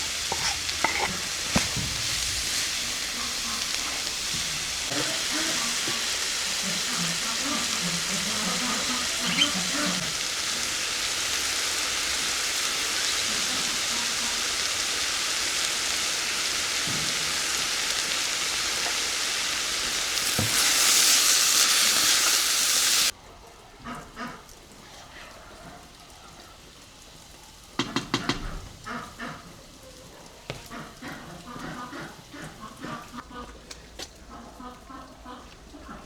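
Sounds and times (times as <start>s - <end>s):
food sizzling in a pan: 0.0s - 23.2s.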